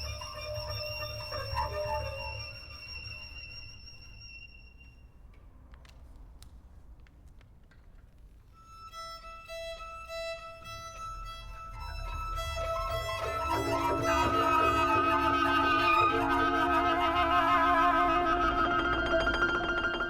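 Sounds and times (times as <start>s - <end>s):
chamber ensemble playing: 0.0s - 3.7s, 9.6s - 20.0s.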